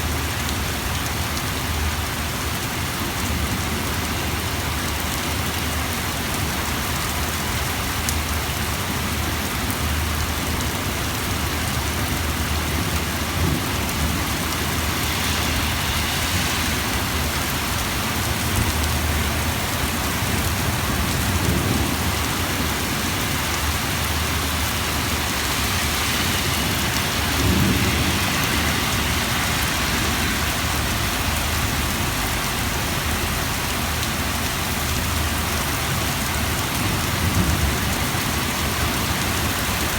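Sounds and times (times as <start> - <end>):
heavy rain on hard surfaces: 0.0 - 39.9
thunder rumbling: 12.4 - 32.2.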